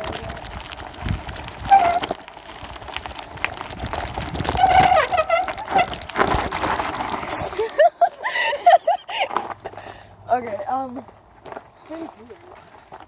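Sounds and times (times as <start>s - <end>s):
camera rattling and clicking: 0.0s - 7.9s
bicycle rolling over bumpy trail: 0.0s - 13.0s
high squeal: 4.5s - 6.0s.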